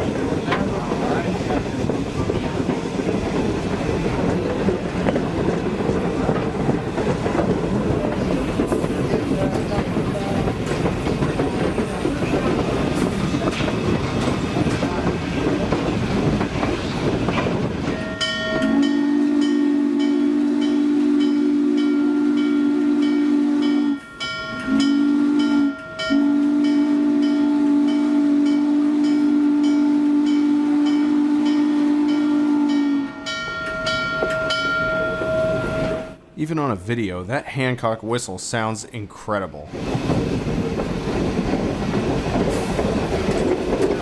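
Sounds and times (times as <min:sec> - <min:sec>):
train rumbling on rails: 0:00.0 - 0:36.4, 0:39.6 - 0:44.0
steam locomotive whistle: 0:18.2 - 0:36.2.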